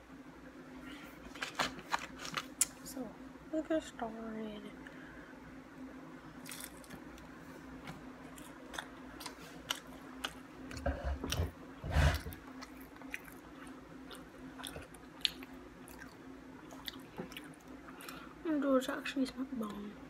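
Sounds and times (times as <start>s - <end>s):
chewing crunchy food: 6.4s - 7.4s, 8.2s - 18.3s.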